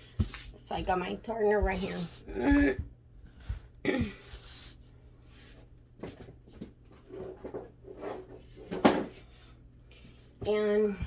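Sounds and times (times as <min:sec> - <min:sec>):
objects knocking and rustling: 0:06.0 - 0:09.6.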